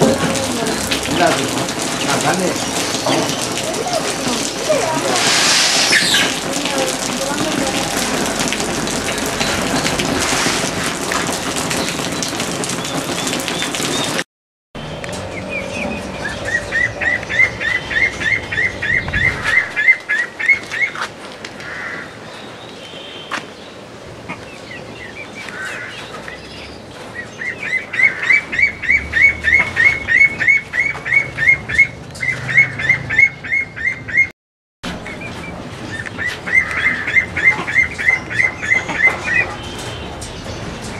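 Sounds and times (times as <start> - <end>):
rain-like hiss with patter: 0.0 - 14.2, 18.6 - 28.9
other birds chirping: 1.1 - 8.2, 15.4 - 34.3
bird calling with rising notes: 14.9 - 21.0, 26.7 - 34.3.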